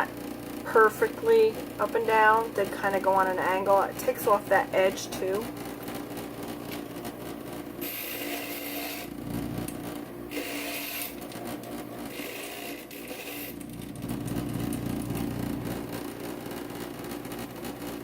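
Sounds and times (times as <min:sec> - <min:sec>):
grinder motor hum: 0:00.0 - 0:18.0
glass grinding rasp: 0:07.8 - 0:09.2, 0:10.3 - 0:11.3, 0:12.1 - 0:13.6.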